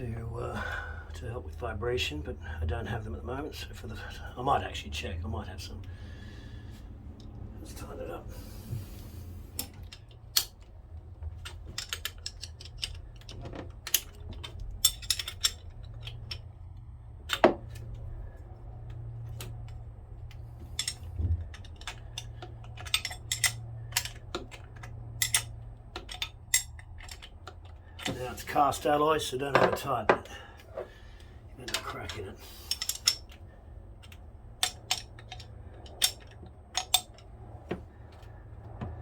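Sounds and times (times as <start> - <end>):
hand tools clicking on metal: 11.4 - 17.9, 18.9 - 29.0, 29.7 - 37.4.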